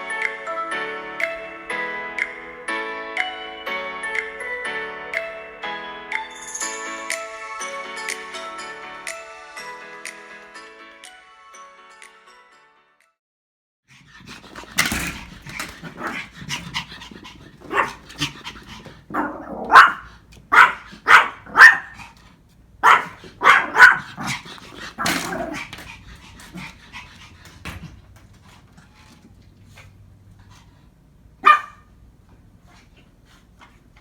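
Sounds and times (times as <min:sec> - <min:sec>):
puppy yapping: 0:19.2 - 0:22.0, 0:22.8 - 0:24.3, 0:31.4 - 0:31.8.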